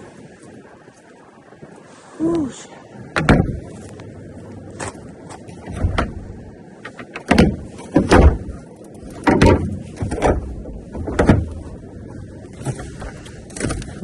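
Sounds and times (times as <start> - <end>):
knocks and thuds of boxes moved: 3.2 - 3.7, 6.9 - 11.6.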